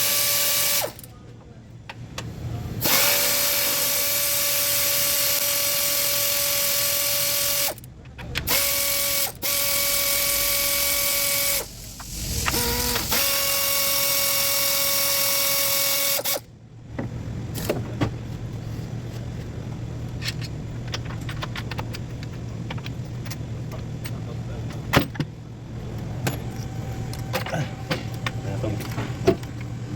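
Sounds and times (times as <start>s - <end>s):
power drill whirring: 0.0s - 1.0s, 2.8s - 7.8s, 8.5s - 16.4s
low hum: 9.4s - 14.5s
metal parts clicking and tapping: 20.2s - 25.3s.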